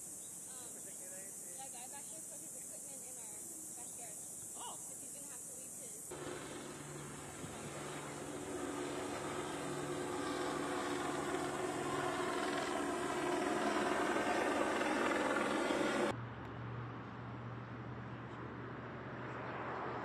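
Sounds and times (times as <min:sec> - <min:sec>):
low hum: 0:06.1 - 0:16.5.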